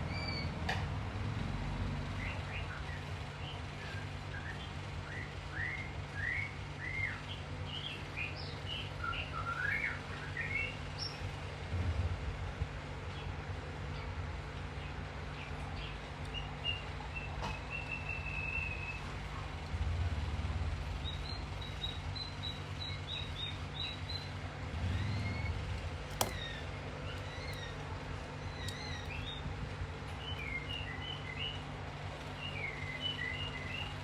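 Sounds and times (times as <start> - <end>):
low rumble and hum: 0.0 - 34.0
small birds chirping: 2.2 - 11.4, 13.1 - 19.6, 20.9 - 34.0
sharp click: 26.1 - 26.5.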